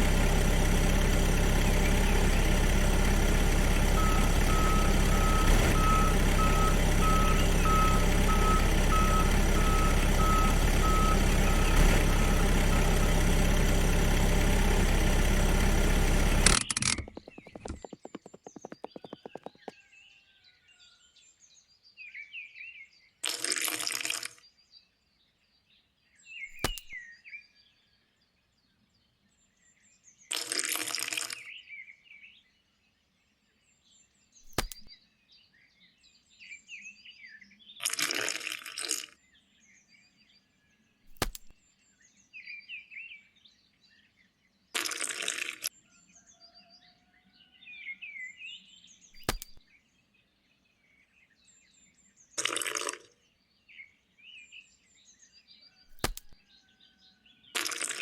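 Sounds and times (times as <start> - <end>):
birds chirping: 0.0 - 19.7.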